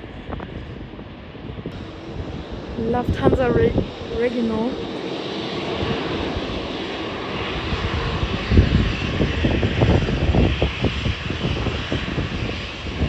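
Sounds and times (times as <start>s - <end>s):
low crackling rumble: 0.0s - 6.8s
jet engine hiss: 1.2s - 13.0s.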